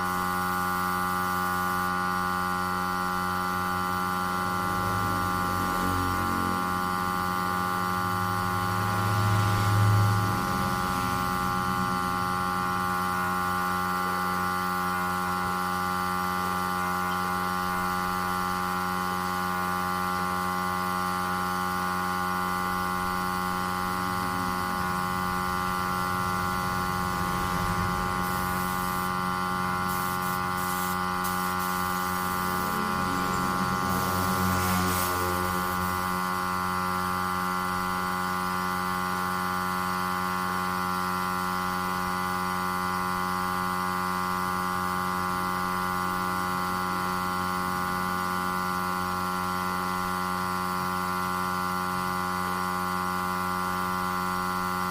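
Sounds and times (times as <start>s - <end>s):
electrical mains hum: 0.0s - 38.2s.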